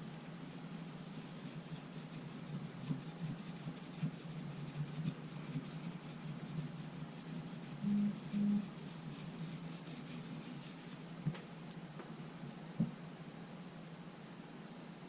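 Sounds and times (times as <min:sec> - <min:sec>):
rubbing on glass: 0:00.0 - 0:11.2
steady low hum: 0:00.0 - 0:15.0
short low buzzes: 0:07.8 - 0:08.7.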